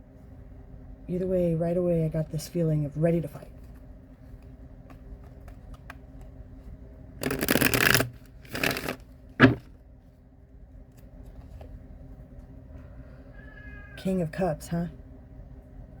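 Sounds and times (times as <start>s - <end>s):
cards being shuffled: 3.6s - 6.4s, 7.2s - 9.7s.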